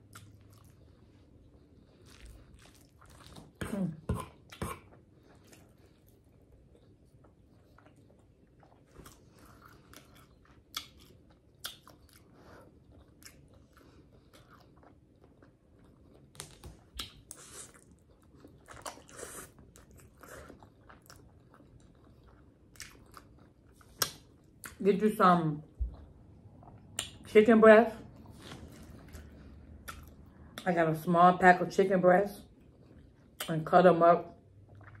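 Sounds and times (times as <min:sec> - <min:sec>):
woman chewing and slurping noodles: 0:16.9 - 0:24.6.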